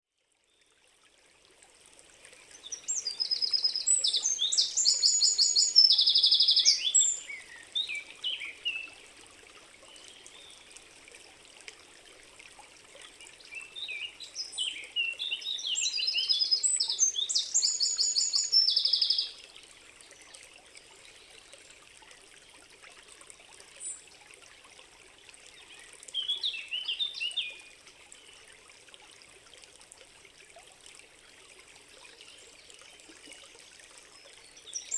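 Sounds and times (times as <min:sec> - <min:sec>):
faint stream flowing: 0:00.1 - 0:34.9
songbird singing trilled phrases: 0:02.6 - 0:08.9, 0:13.6 - 0:19.4.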